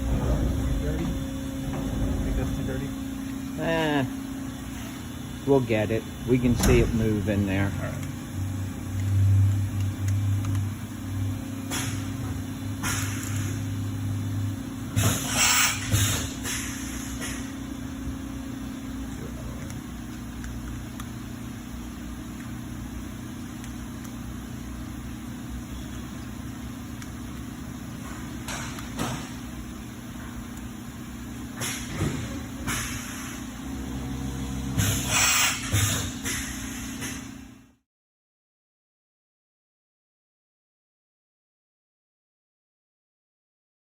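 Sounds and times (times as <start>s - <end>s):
milling machine humming: 0.0s - 35.2s
hissing clattering bursts: 15.0s - 17.5s, 31.6s - 33.5s, 34.8s - 37.3s
short hissing bursts: 34.8s - 36.9s.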